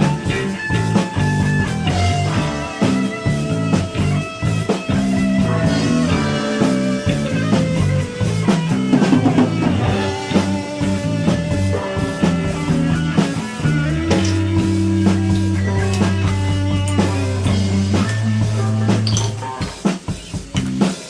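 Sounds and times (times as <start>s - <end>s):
rock music: 0.0s - 21.0s.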